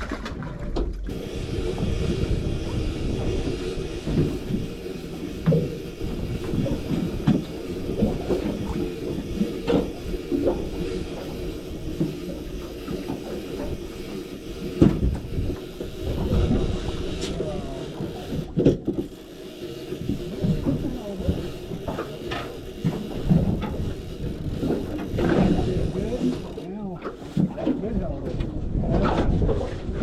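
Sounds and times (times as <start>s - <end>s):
boat motor rumbling: 0.0s - 30.0s
knocks and clatter on board: 14.8s - 15.5s, 18.5s - 19.1s.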